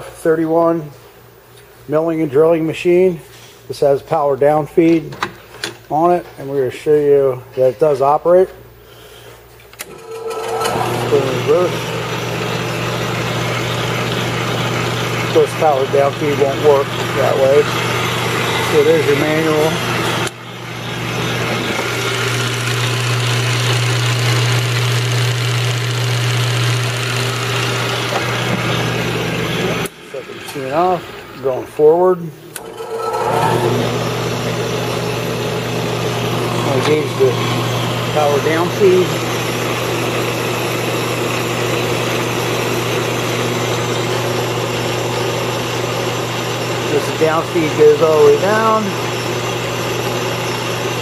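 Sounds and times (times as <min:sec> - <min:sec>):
mill-drill motor humming: 0:09.8 - 0:31.6, 0:32.5 - 0:51.0.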